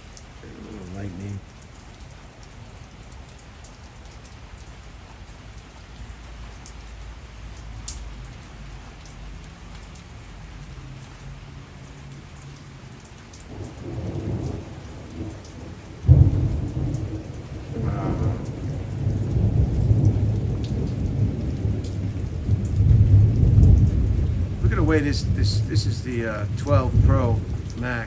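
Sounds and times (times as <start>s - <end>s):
heavy rain: 0.0s - 28.0s
raindrops ticking close by: 0.0s - 28.0s
low thunder rumbling: 13.5s - 28.0s
loud thunder crack: 16.0s - 28.0s.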